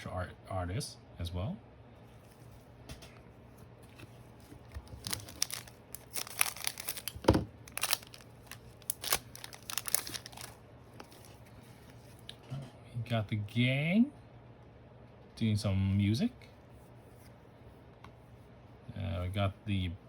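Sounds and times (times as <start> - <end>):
crinkling card packaging: 3.8 - 12.2.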